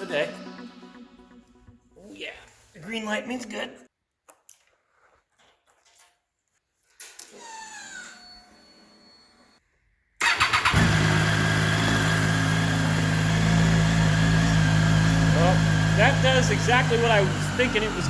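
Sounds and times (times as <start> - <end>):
motorcycle engine cranking: 10.2 - 18.0
motorcycle engine idling: 10.2 - 18.0.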